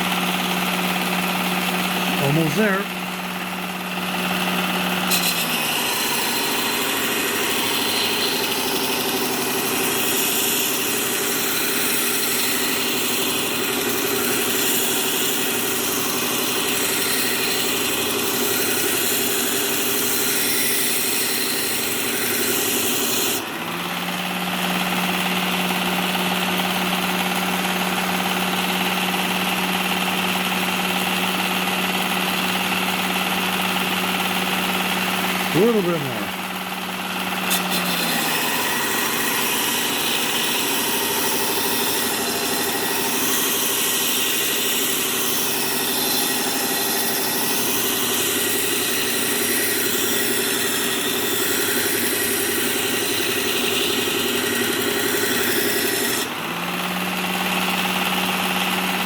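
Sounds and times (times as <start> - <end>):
metal grinding on abrasive belt: 0.8 - 2.8, 4.0 - 23.5, 33.6 - 56.4
sharpener motor humming: 1.3 - 23.6, 33.8 - 56.4.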